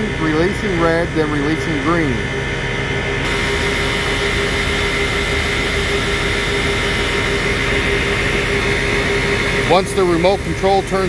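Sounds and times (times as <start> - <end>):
high whine: 0.0 - 11.0
vacuum truck mechanical drone: 0.0 - 11.0.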